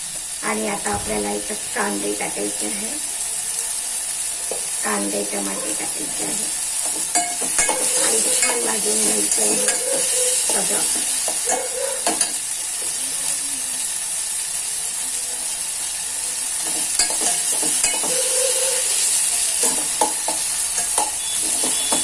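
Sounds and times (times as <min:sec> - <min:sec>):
food sizzling in hot oil: 0:00.0 - 0:22.0
spatula scraping and tapping pan: 0:06.8 - 0:13.0, 0:16.6 - 0:18.7, 0:19.6 - 0:22.0.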